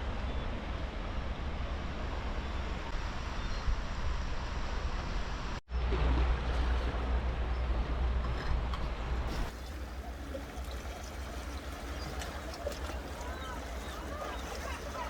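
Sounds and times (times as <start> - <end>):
sea waves washing: 9.3 - 15.0.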